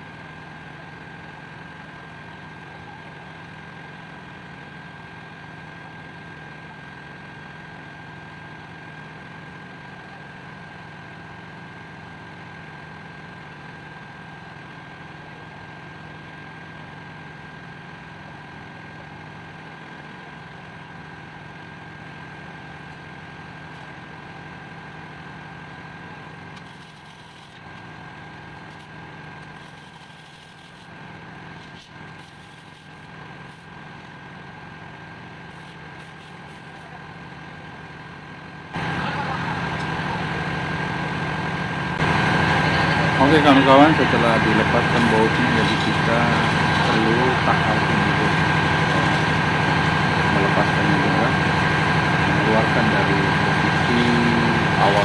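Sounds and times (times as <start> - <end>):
engine room machinery hum: 0.0 - 55.0
high-pitched machine whine: 38.7 - 55.0.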